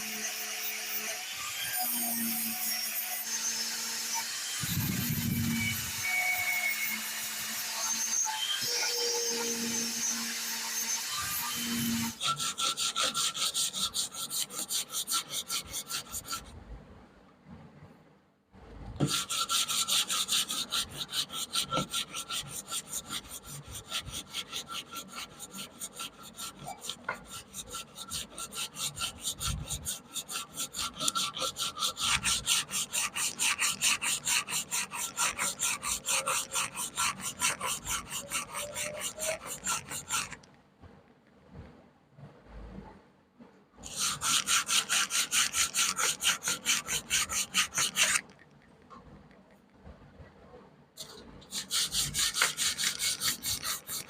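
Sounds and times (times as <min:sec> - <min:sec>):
abrasive rubbing on metal wrench: 0:19.1 - 0:40.5, 0:43.8 - 0:48.4, 0:51.0 - 0:54.0.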